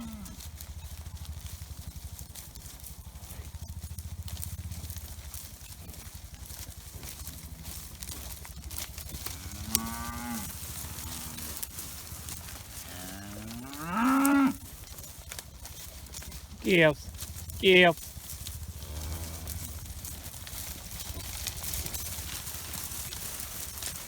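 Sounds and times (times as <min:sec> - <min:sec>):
cows mooing: 0:00.0 - 0:01.5, 0:05.9 - 0:23.3.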